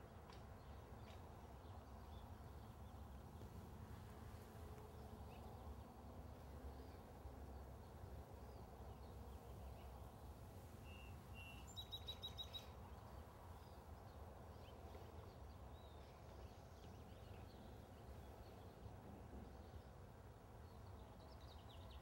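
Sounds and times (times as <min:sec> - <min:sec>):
small bird chirping: 0:10.8 - 0:13.1.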